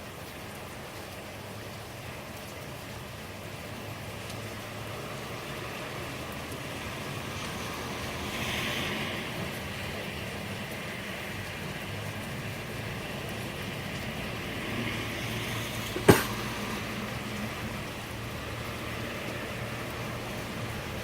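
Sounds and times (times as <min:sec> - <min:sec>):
steady rain falling: 0:00.0 - 0:21.0
sharp knock: 0:16.0 - 0:16.4.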